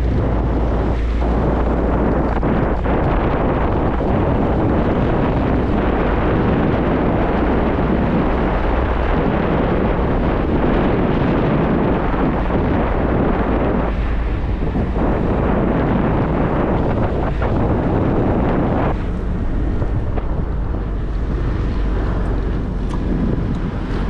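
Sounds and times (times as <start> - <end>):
motorcycle rumble: 0.0 - 24.0
wind buffeting microphone: 0.0 - 24.0.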